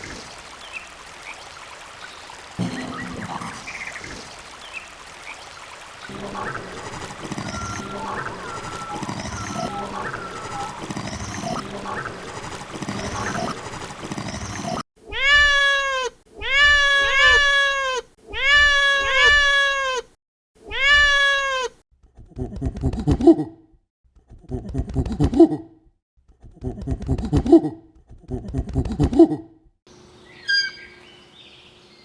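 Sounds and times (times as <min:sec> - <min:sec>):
cats meowing: 0:15.1 - 0:20.1, 0:20.7 - 0:21.8
faint chirps: 0:30.3 - 0:32.0.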